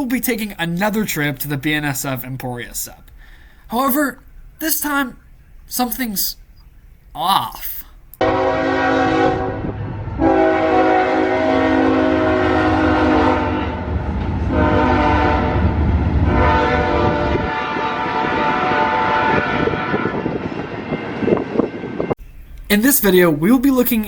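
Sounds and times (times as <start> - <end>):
locomotive horn blasts: 8.2 - 22.1
low locomotive rumble: 8.2 - 22.7.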